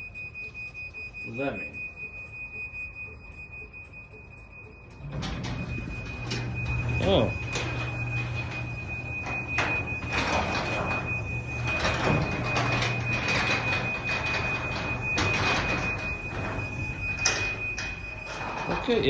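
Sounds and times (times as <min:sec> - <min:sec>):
garage door motor hum: 0:01.9 - 0:19.0
door clattering and rattling: 0:05.0 - 0:19.0.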